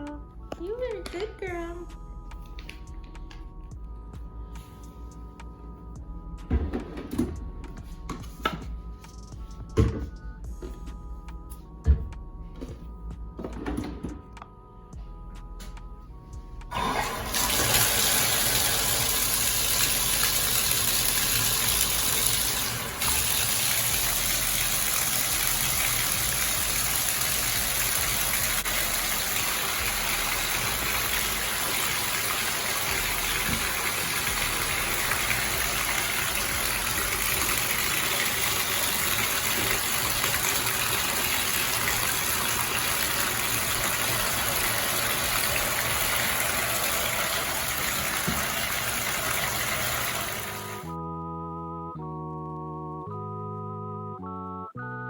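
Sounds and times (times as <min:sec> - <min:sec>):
water gushing from a tap: 0:16.7 - 0:50.9.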